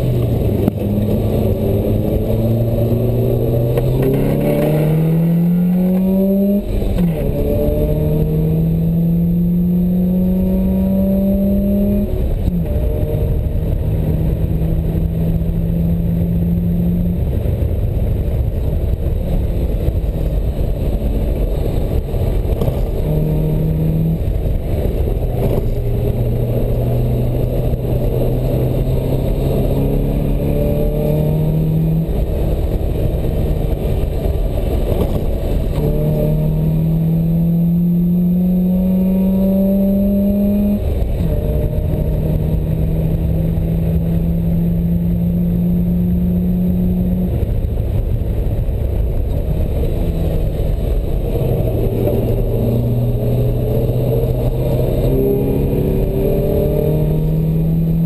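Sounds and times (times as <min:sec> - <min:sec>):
sports car engine accelerating: 0:00.0 - 0:58.0
wind rush: 0:00.0 - 0:58.0.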